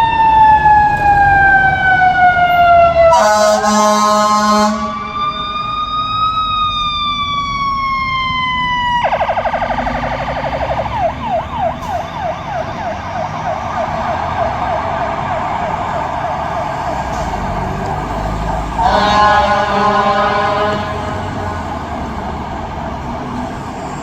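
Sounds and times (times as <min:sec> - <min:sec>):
fire engine siren wailing and yelping: 0:00.0 - 0:24.0
fire engine horn blast: 0:02.5 - 0:05.3, 0:18.7 - 0:21.8.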